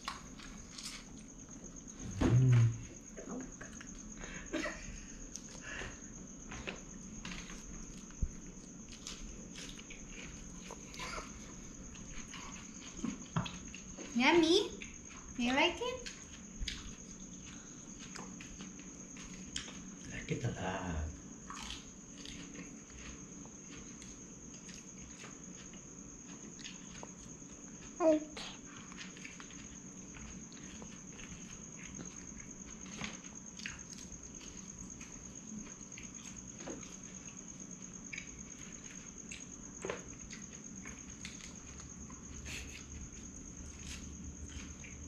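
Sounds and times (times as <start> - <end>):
toddler crunching lettuce: 0.0 - 1.2.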